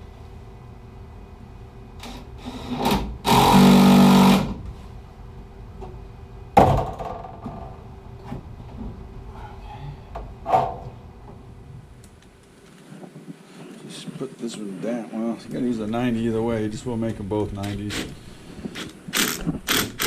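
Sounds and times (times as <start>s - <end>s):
cordless drill driving fastener: 18.7s - 20.0s.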